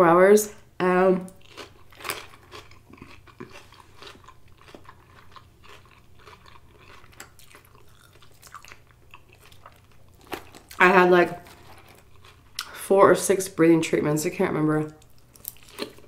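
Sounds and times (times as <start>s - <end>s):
chewing crunchy lettuce: 1.2s - 12.9s, 14.9s - 16.0s.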